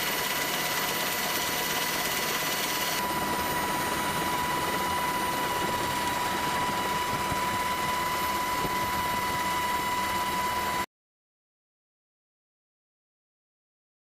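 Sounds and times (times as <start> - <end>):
machinery whining: 0.0 - 10.8.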